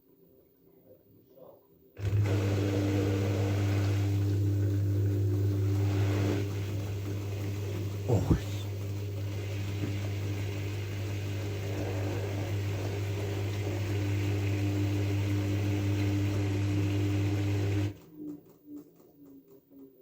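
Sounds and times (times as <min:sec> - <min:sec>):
drain pump humming: 0:02.0 - 0:18.0.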